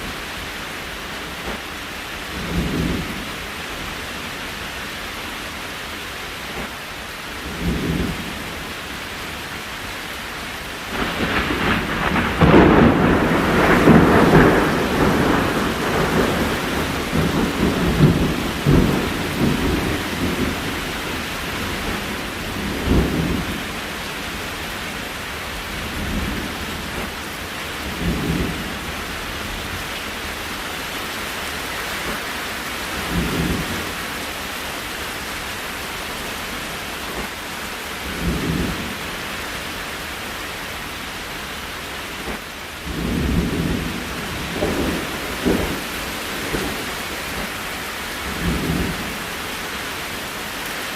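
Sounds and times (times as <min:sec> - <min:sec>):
rain hiss: 0:00.0 - 0:50.9
thunder rumbling: 0:02.3 - 0:03.5, 0:10.9 - 0:30.6, 0:32.9 - 0:34.2, 0:38.0 - 0:39.2, 0:42.2 - 0:49.5.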